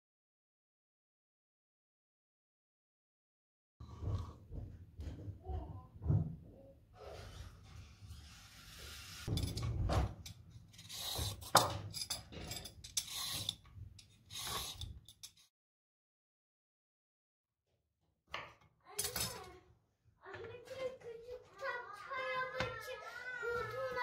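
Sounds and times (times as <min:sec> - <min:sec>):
hands handling kitchen things: 0:08.7 - 0:15.5, 0:18.4 - 0:19.6.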